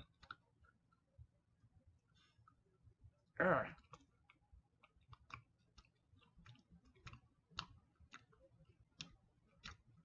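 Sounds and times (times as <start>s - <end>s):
person chewing gummy candy: 0.0s - 1.1s, 3.6s - 10.0s.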